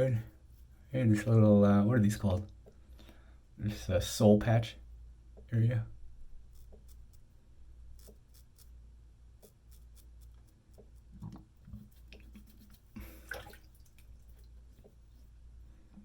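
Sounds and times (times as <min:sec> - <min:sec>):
razor scraping stubble: 0:06.4 - 0:08.8, 0:09.4 - 0:13.0.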